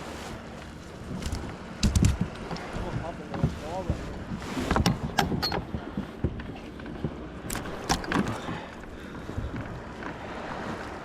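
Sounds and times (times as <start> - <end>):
wind on microphone: 0.0 - 11.0
sharp clicks and knocks: 1.2 - 3.6.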